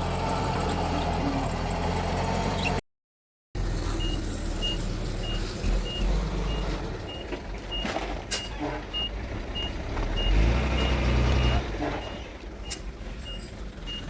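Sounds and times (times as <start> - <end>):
diesel engine running: 0.0 - 2.8
reversing alarm beeping: 4.0 - 14.0.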